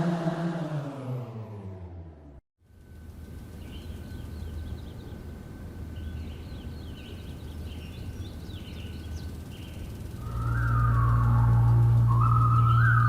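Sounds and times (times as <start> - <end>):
small birds chirping: 3.1 - 13.0
low rumble: 10.0 - 13.0
music with whistled melody: 10.2 - 13.0.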